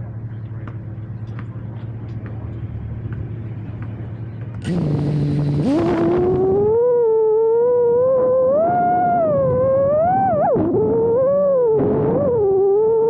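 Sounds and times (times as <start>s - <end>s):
steady low hum: 0.0s - 13.0s
drone motors whining: 4.5s - 13.0s.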